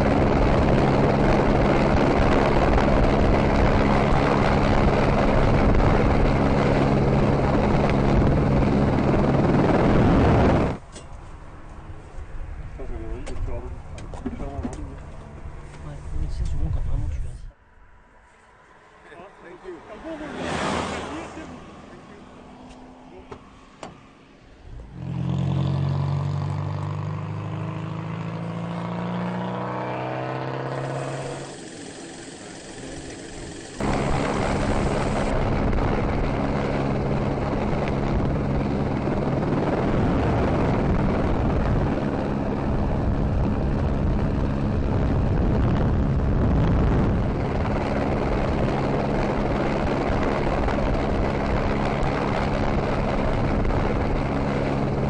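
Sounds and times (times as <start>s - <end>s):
helicopter drone: 0.0s - 10.8s, 29.2s - 55.0s
car engine: 0.0s - 55.0s.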